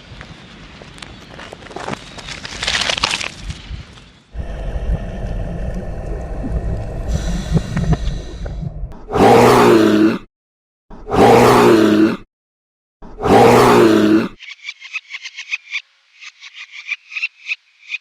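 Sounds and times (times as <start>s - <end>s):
large animal roaring: 9.0s - 10.3s, 11.0s - 12.2s, 13.1s - 14.4s.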